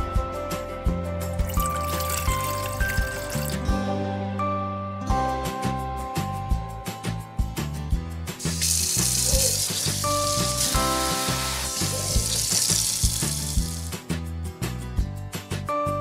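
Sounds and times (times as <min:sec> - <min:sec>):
background music with steady beat: 0:00.0 - 0:04.5, 0:05.1 - 0:16.0
squid sizzling in hot oil: 0:08.4 - 0:13.9.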